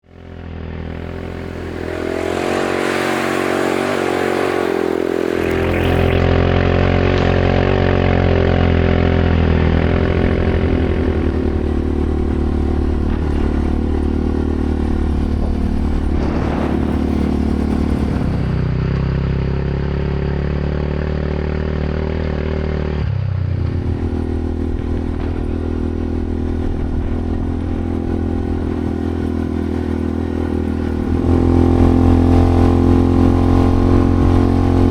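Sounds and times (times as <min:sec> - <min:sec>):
quad bike engine running: 0:00.0 - 0:34.9
rushing noise: 0:00.9 - 0:06.3, 0:09.7 - 0:18.7.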